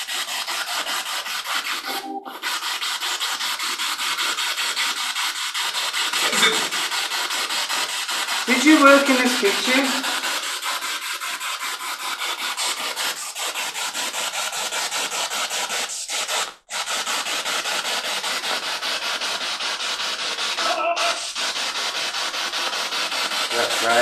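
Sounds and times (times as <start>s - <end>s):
snatch of broadcast sound: 1.7s - 2.6s, 8.5s - 10.2s, 20.5s - 21.6s, 23.5s - 24.0s.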